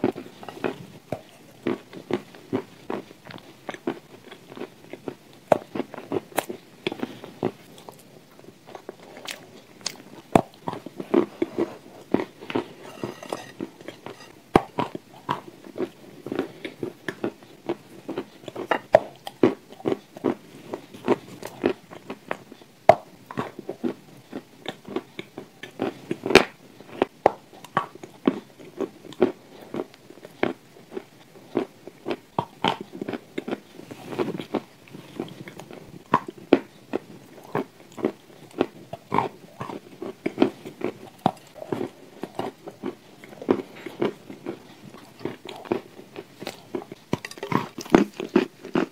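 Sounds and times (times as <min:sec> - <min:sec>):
person crunching dry food: 0:08.7 - 0:14.4, 0:37.4 - 0:48.9.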